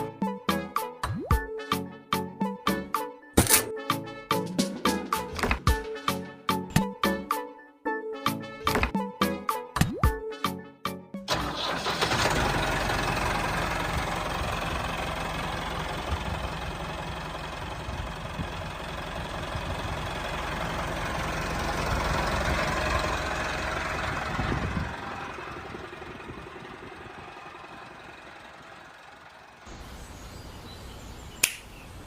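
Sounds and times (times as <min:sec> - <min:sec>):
small engine rumbling: 0:11.3 - 0:32.0.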